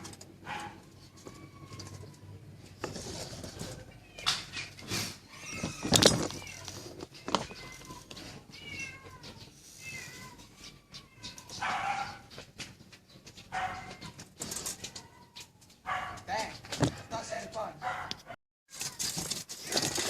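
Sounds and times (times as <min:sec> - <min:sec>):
cat meowing: 0:03.9 - 0:12.2.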